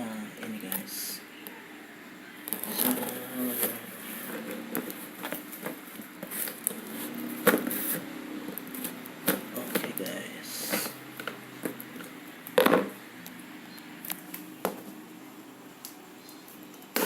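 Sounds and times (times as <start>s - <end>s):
cardboard rustling and scraping: 2.6s - 8.1s.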